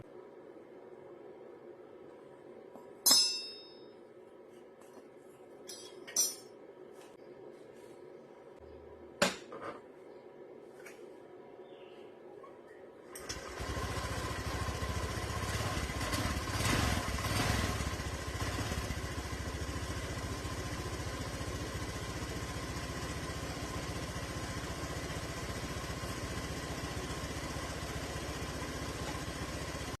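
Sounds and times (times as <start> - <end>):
scooter engine revving and idling: 13.2 - 30.0.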